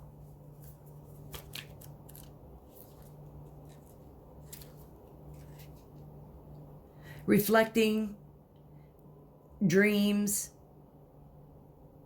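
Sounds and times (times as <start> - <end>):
paper pages turning: 0.1 - 6.1.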